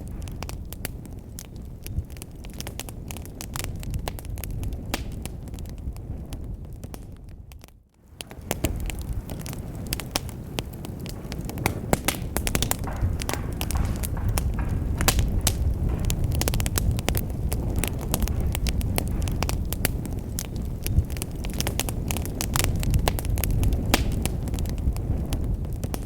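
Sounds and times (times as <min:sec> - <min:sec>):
low rumble of flames: 0:00.0 - 0:26.0
wood fire crackling: 0:00.0 - 0:26.0
sharp pops: 0:11.1 - 0:24.4.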